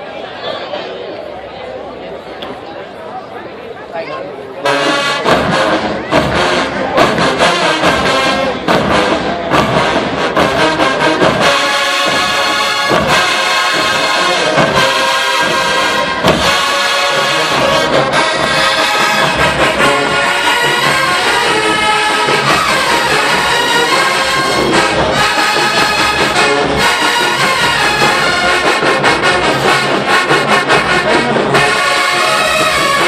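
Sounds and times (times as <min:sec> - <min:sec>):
brass section playing: 0:04.6 - 0:33.0
drum hits: 0:05.2 - 0:15.6, 0:16.2 - 0:31.6.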